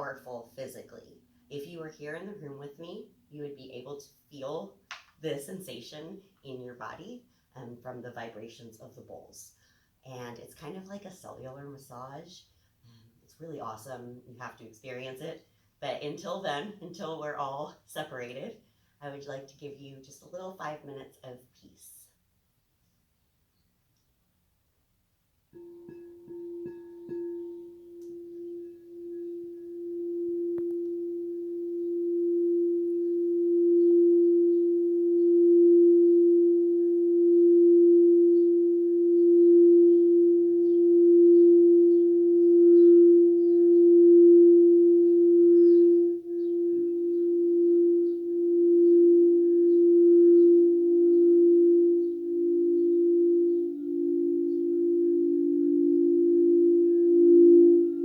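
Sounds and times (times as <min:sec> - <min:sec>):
lower-pitched singing bowl ringing: 0:25.6 - 0:58.0
singing bowl sustained tone: 0:25.6 - 0:58.0.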